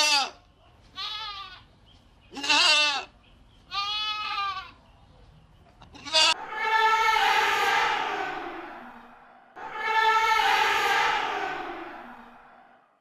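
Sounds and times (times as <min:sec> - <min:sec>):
farm animals bleating: 0:00.0 - 0:00.4, 0:01.0 - 0:01.7, 0:02.3 - 0:04.8, 0:05.9 - 0:06.4.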